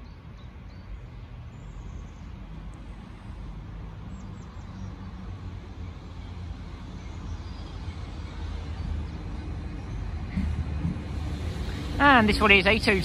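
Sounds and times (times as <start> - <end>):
train diesel engine rumble: 5.4 - 13.0.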